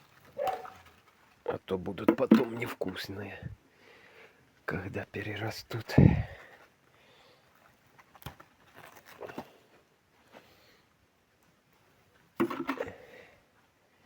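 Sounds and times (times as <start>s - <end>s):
rustling of vines and leaves: 0.0s - 1.7s, 5.4s - 10.7s.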